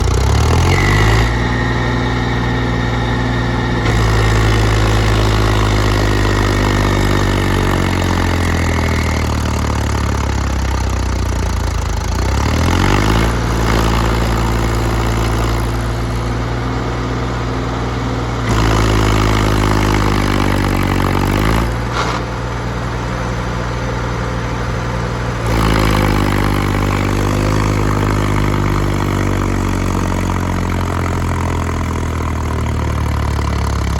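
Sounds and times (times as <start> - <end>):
thin high whine: 0.0 - 10.8
heavy diesel machinery running: 0.0 - 33.9.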